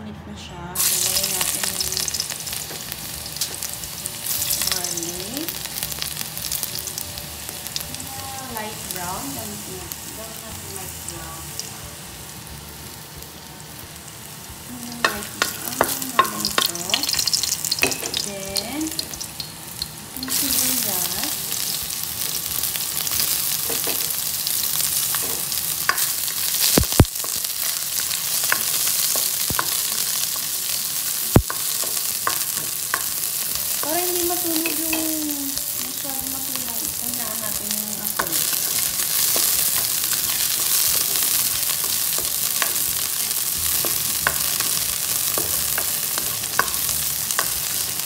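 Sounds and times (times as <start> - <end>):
garlic and onions sizzling in oil: 0.8 - 48.0
spatula tapping and scraping pan: 43.8 - 47.7.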